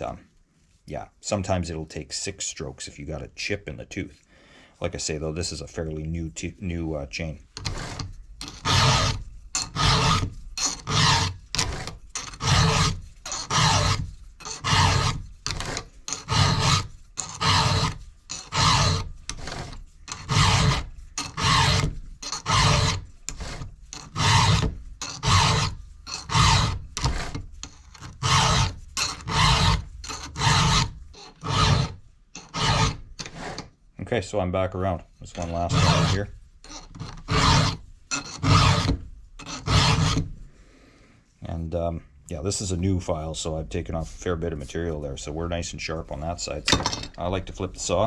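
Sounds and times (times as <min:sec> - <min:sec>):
file rasping on chainsaw chain: 0:07.6 - 0:33.7, 0:35.3 - 0:40.3.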